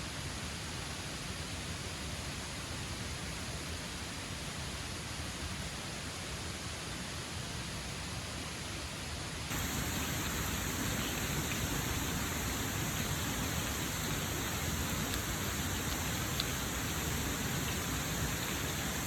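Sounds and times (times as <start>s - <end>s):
faint drop ticks: 9.5s - 19.0s
steady rain hiss: 9.5s - 19.0s.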